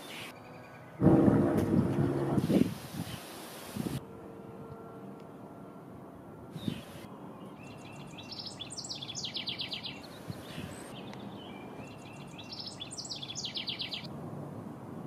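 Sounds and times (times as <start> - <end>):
low outdoor rumble: 1.0 - 2.8
songbird trilling: 7.6 - 14.1.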